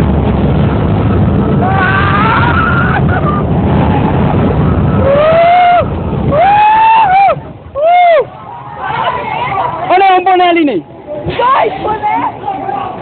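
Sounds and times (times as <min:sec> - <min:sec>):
wind buffeting microphone: 0:00.0 - 0:10.0
riders screaming: 0:01.5 - 0:04.0, 0:05.0 - 0:09.9.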